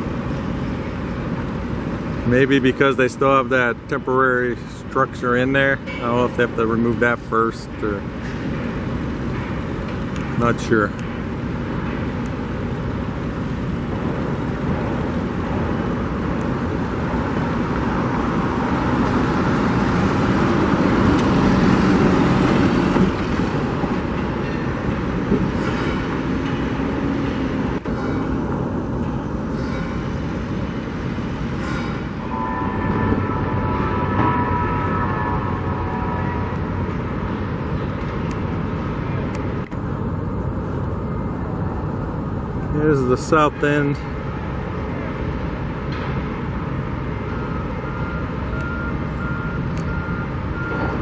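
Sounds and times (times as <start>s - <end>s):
train passing rumble: 0.0s - 48.5s
higher steady tones: 27.8s - 38.0s, 39.7s - 43.9s.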